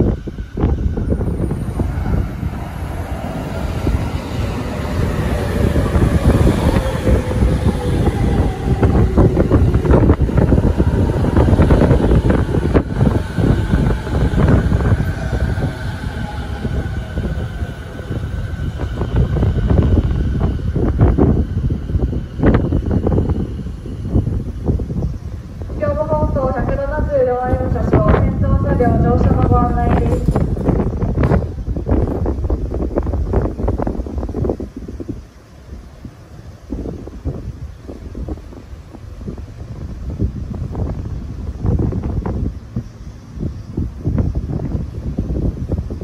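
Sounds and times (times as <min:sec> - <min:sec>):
train whine falling in pitch: 0:00.0 - 0:24.7
train braking: 0:00.0 - 0:32.9.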